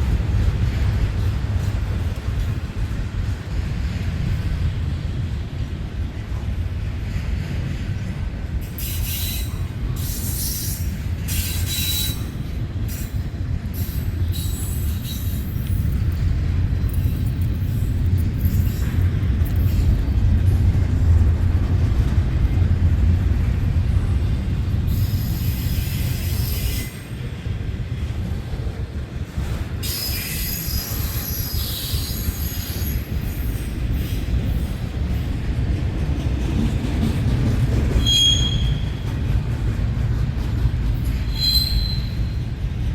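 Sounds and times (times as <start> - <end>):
train wheels rumbling on rails: 0.0 - 42.9
high-pitched wheel squeals: 8.8 - 12.4, 29.8 - 34.2, 38.0 - 39.0, 41.0 - 42.4.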